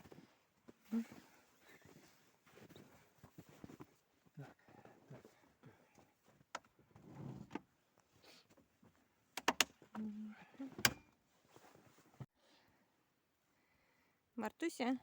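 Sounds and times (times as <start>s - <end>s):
soft rustling: 0.0s - 6.5s, 11.3s - 12.3s
sharp clicks and knocks: 9.4s - 9.8s.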